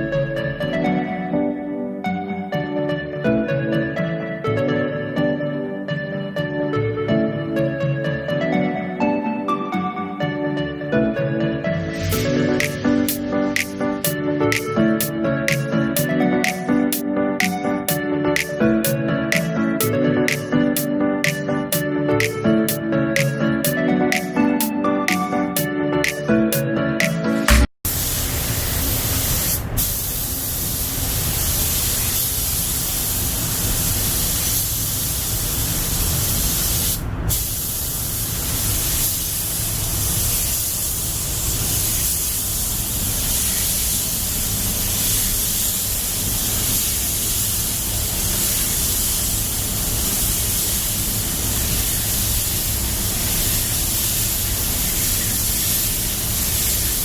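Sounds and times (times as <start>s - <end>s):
spray gun hissing: 27.6s - 57.0s.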